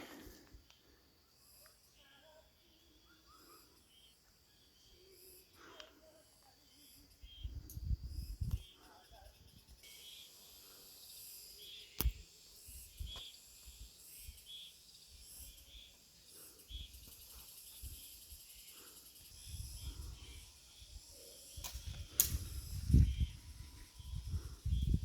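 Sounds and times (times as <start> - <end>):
insects chirring: 0.0 - 25.0
sharp clicks: 21.6 - 22.5.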